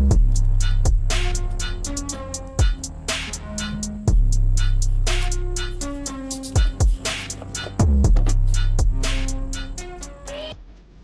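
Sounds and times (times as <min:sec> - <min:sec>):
hip-hop music: 0:00.0 - 0:10.6.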